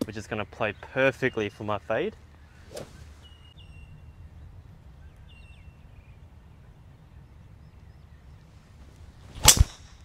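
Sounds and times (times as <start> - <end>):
bird chirping: 0.1 - 10.0.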